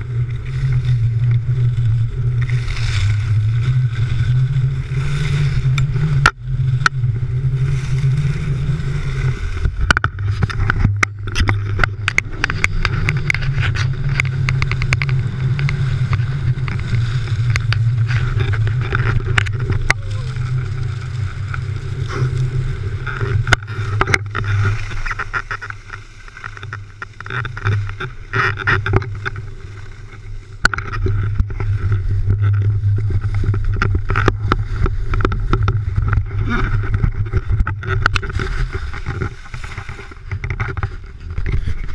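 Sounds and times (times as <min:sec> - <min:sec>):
wind buffeting microphone: 0:00.0 - 0:29.6.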